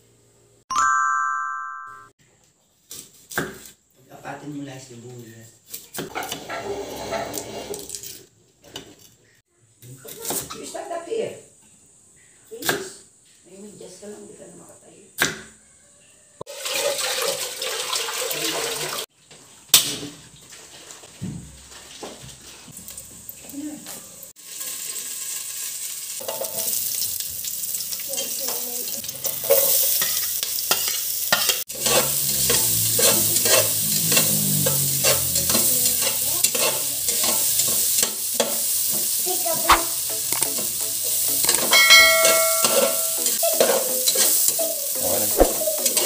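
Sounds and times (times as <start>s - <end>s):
spatula scraping a pot: 6.1s - 8.2s, 30.0s - 37.3s
food sizzling in hot oil: 16.5s - 19.1s, 22.4s - 46.0s.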